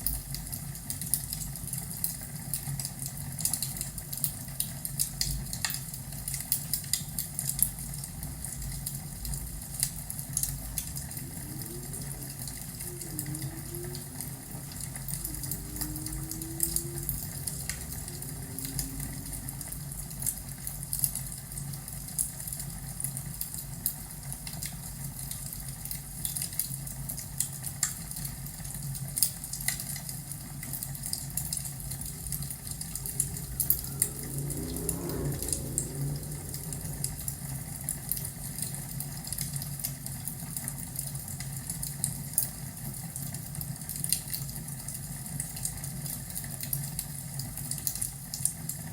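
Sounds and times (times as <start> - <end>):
low fire rumble: 0.0 - 43.1.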